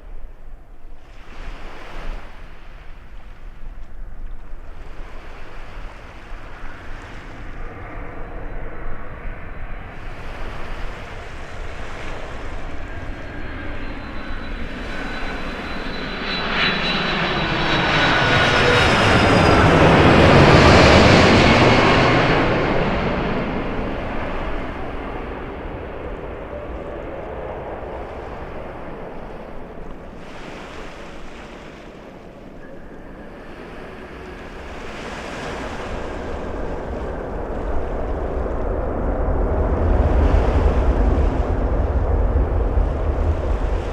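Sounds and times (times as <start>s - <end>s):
jet airliner passing overhead: 0.0s - 43.9s.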